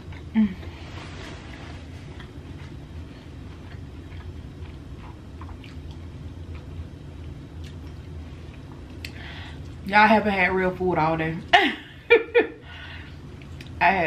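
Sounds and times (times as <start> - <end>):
steady low hum: 0.0 - 14.0
soft mouth clicks chewing: 3.5 - 9.8, 13.4 - 13.8.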